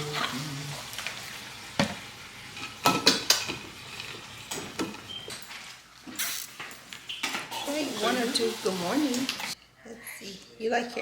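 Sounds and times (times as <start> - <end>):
dishes and utensils clinking: 1.8 - 8.1.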